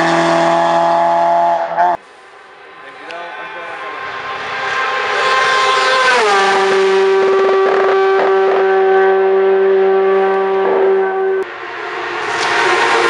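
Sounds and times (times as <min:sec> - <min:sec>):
race car engine at high revs: 0:00.0 - 0:02.0, 0:03.6 - 0:13.0
exhaust crackles: 0:00.0 - 0:11.5.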